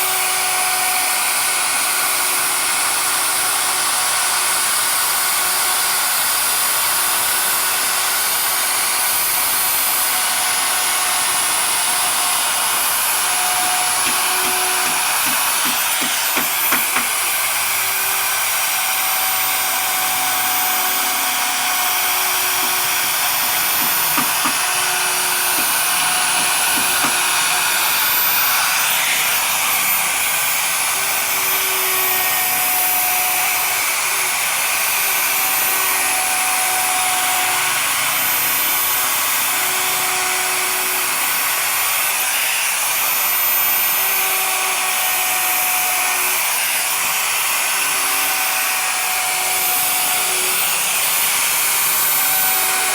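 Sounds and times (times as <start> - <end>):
power tool motor whirring: 0.0 - 52.9
knocks: 13.6 - 17.3, 23.8 - 27.4.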